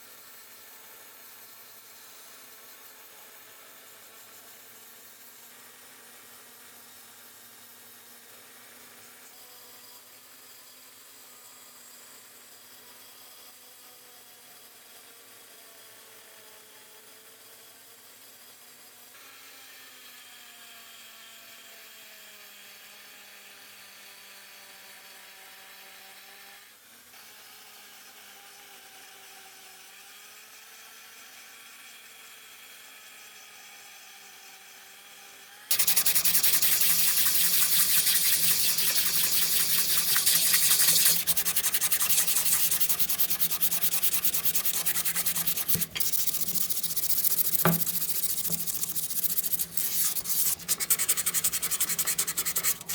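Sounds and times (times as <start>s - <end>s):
abrasive rubbing on brass: 35.7s - 52.9s.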